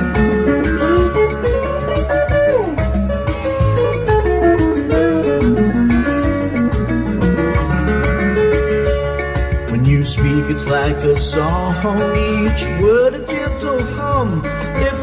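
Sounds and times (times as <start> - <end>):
bass and steady beat: 0.0 - 15.0
guitar melody: 0.0 - 15.0.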